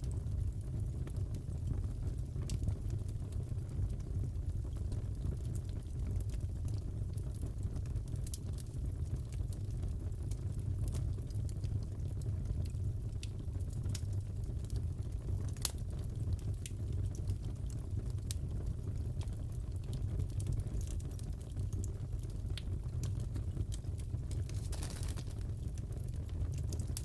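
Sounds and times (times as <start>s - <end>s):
fire pops and snaps: 4.7s - 27.0s
burning wood rumble: 20.5s - 27.0s.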